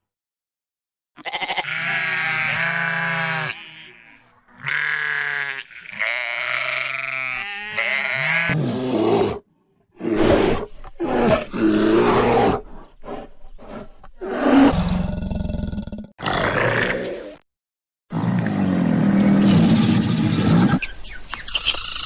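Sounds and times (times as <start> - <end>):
sheep and goats bleating: 1.2 - 8.6
polar bear growling: 8.5 - 17.4.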